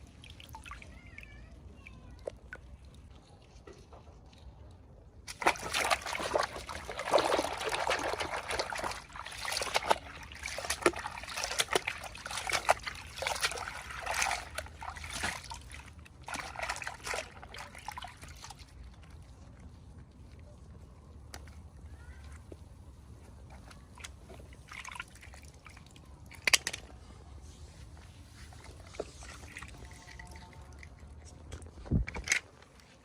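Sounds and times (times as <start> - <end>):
water sloshing and trickling: 0.0 - 33.0.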